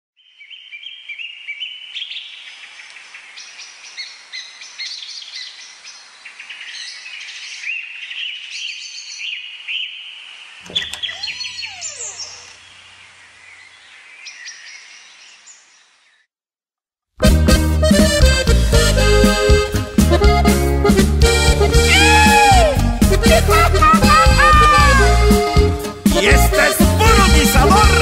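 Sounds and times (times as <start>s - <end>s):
small birds chirping: 0.2s - 16.3s.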